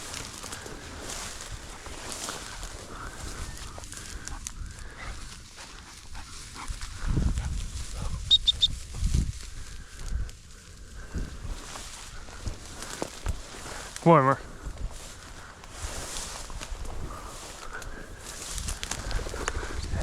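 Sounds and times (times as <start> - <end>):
quick high beeps: 8.3 - 8.7.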